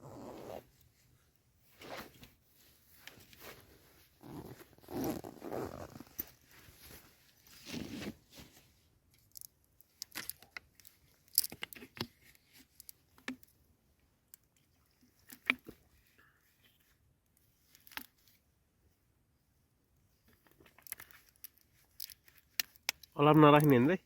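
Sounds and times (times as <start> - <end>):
bedding rustling and crinkling: 0.6 - 8.8.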